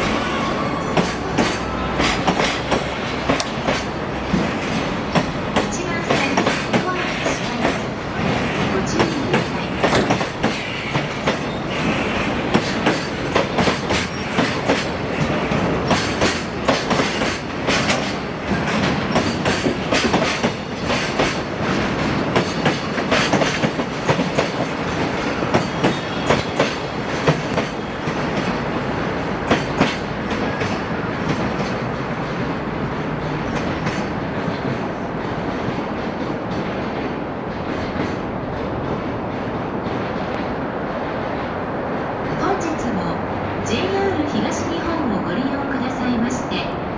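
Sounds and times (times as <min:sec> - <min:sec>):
train rumbling: 0:00.0 - 0:46.9
train wheels clacking over rail joints: 0:01.0 - 0:40.6.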